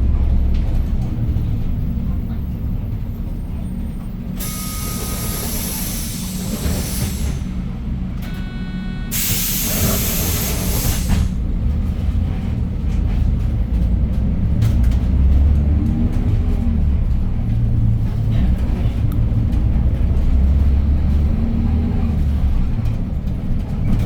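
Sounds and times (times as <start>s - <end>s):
bus engine idling: 0.0s - 24.0s
short electronic beep: 4.4s - 5.3s, 8.2s - 9.4s
compressed air hiss: 9.1s - 11.3s.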